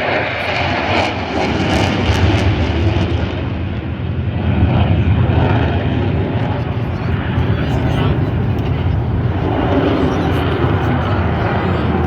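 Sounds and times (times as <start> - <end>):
jet fighter passing: 0.0 - 12.0.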